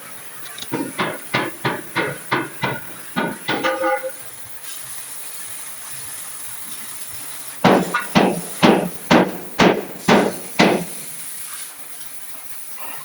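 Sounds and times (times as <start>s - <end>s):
hammer striking steel: 0.7s - 4.2s, 7.6s - 11.1s.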